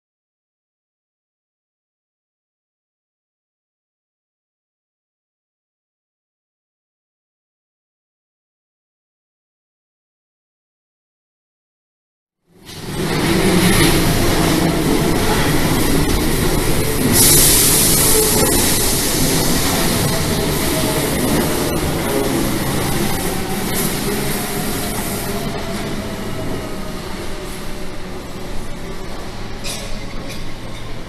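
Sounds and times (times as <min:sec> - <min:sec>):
electric train wheels rumbling: 0:12.5 - 0:31.0
bright hiss: 0:17.0 - 0:20.1.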